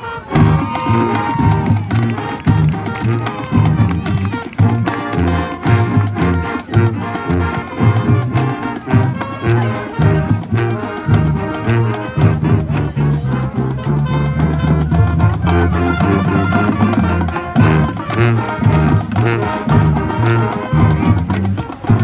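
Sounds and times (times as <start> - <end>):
brass melody: 0.0 - 22.0
bass line: 0.3 - 22.0.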